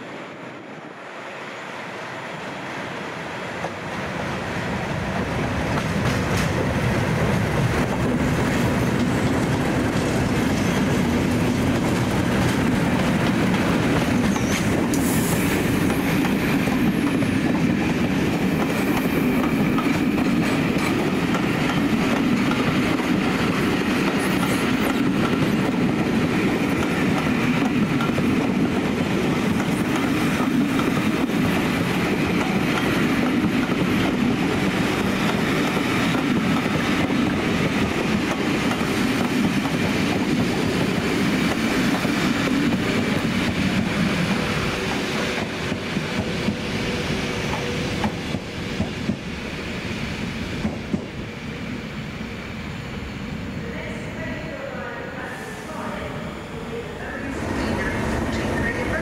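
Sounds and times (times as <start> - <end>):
diesel locomotives running by: 0.0 - 59.0.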